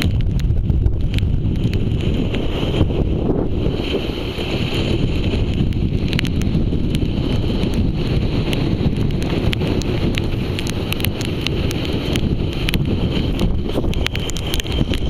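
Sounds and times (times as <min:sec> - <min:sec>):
wind buffeting microphone: 0:00.0 - 0:15.0
small sharp ticks: 0:05.4 - 0:15.0.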